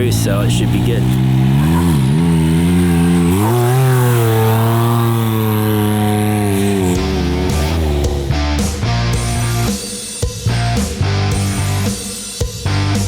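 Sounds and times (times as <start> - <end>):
off-road vehicle engine revving: 0.0 - 9.8.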